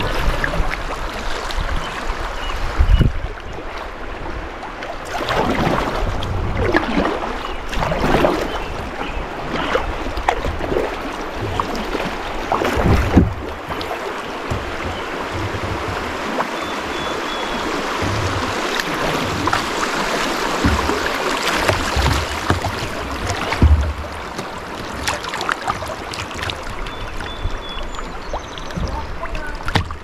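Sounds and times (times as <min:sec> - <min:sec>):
kayak paddle splashing: 0:00.0 - 0:30.0
river current rushing over rocks: 0:03.8 - 0:26.7.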